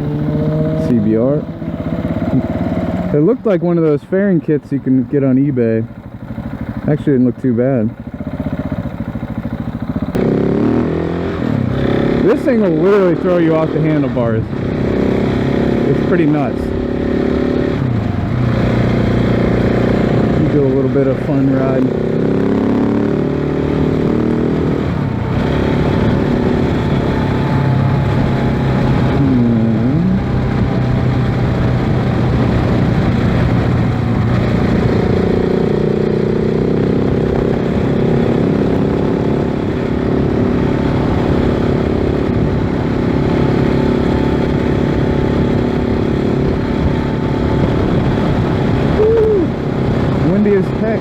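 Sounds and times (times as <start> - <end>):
motorcycle engine riding: 0.0 - 51.0
wind buffeting microphone: 24.4 - 51.0.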